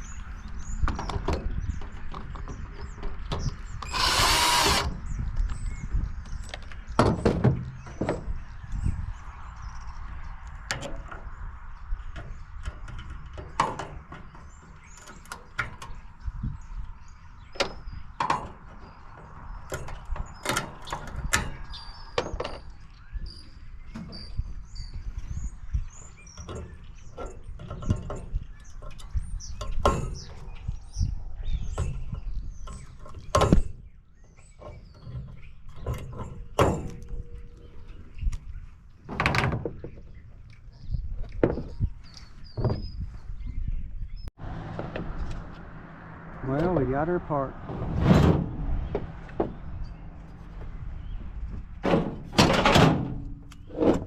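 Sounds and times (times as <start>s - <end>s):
metal knocks clanks and scrapes: 31.6s - 40.2s, 47.6s - 54.0s
steady low rumble: 43.4s - 52.3s.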